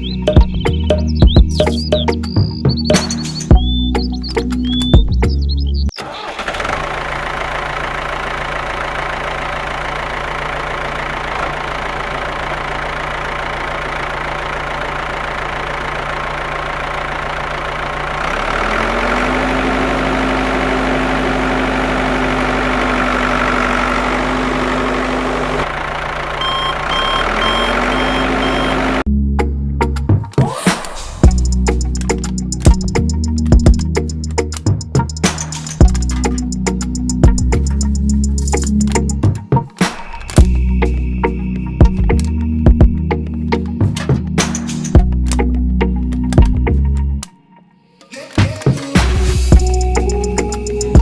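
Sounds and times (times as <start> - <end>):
high beeps: 26.4 - 29.0.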